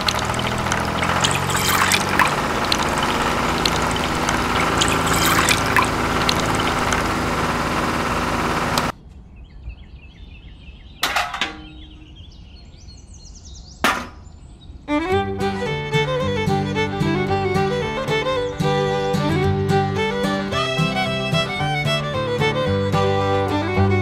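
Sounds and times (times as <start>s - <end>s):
juice pouring into metal bucket: 0.0s - 8.0s
small motor running: 0.0s - 8.9s
music: 14.9s - 24.0s.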